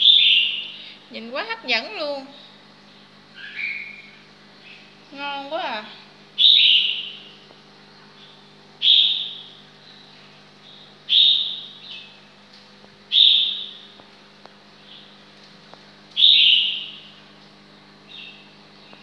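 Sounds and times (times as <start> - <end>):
bird sharp high chirp: 3.4 - 4.8, 6.4 - 7.4, 16.2 - 17.0.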